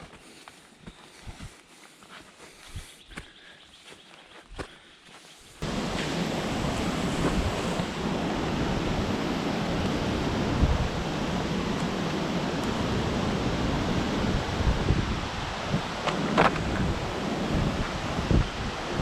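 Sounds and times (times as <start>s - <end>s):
wind on microphone: 5.6s - 19.0s.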